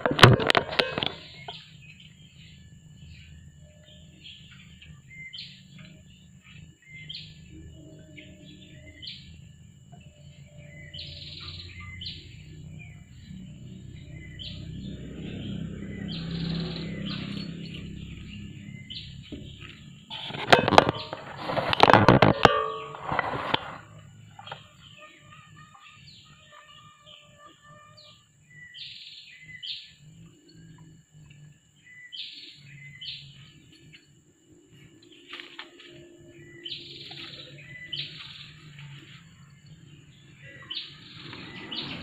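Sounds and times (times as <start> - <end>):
small birds chirping: 0.6 - 42.0.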